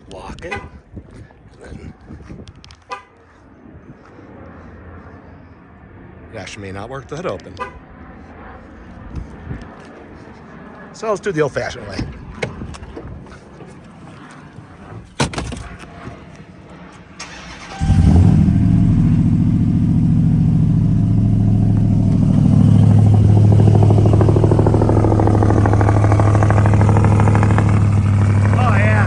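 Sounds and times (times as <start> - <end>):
engine cranking and starting: 17.2 - 19.4
engine idling: 17.4 - 29.0.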